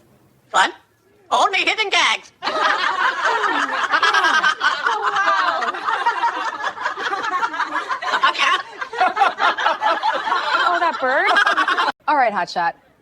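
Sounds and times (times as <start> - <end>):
people laughing: 2.4 - 12.0.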